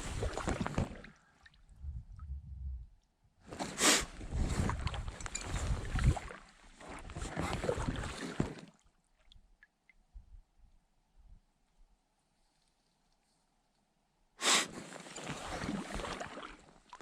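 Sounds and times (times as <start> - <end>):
paddle splashing in water: 0.0 - 1.6, 3.5 - 8.9, 14.4 - 17.0.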